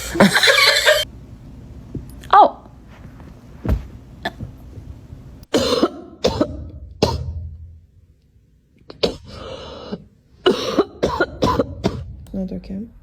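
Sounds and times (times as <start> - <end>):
person coughing: 5.5 - 7.4, 8.9 - 12.2.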